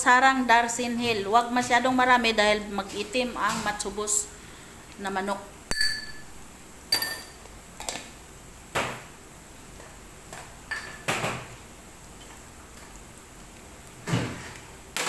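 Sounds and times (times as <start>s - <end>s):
metal spoon clinking on cookware: 5.7s - 6.2s, 6.9s - 7.4s.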